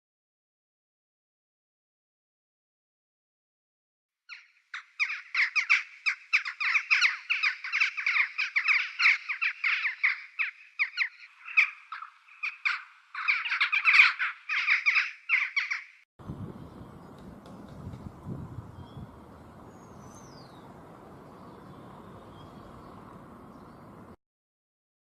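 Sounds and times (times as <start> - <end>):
songbird chattering: 4.3 - 15.8, 16.4 - 24.2
low outdoor rumble: 16.2 - 24.2.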